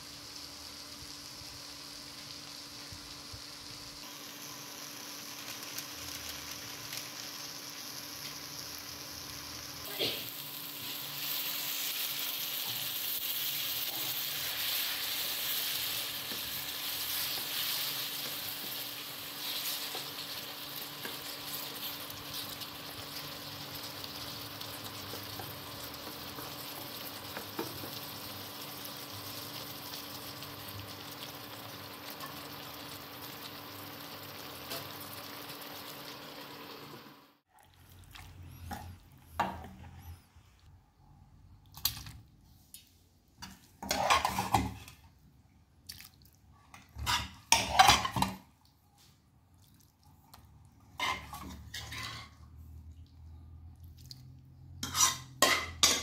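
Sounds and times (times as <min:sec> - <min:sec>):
food sizzling in a wok: 0:00.0 - 0:37.5, 0:43.4 - 0:45.1, 0:47.0 - 0:48.5, 0:50.7 - 0:52.9, 0:54.7 - 0:56.0.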